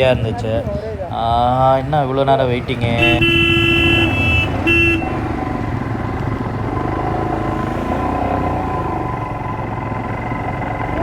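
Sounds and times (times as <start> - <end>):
motorcycle engines: 0.0 - 11.0
horn blast: 2.9 - 5.3
short horn toot: 3.0 - 5.2.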